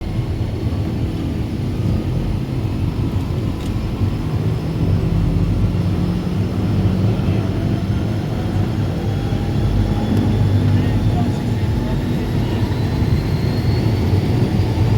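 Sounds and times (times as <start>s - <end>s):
aircraft engine running: 0.0s - 14.9s.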